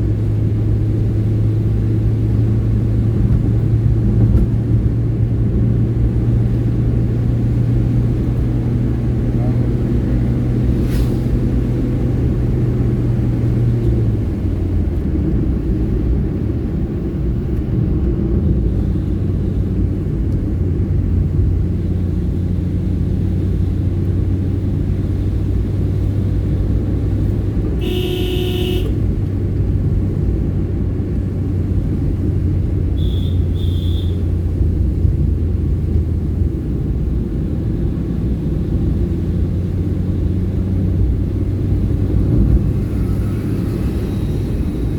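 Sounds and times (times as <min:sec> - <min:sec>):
car engine and road rumble: 0:00.0 - 0:44.9
short high beeps: 0:27.8 - 0:28.9
loud pitched tone: 0:27.8 - 0:29.0.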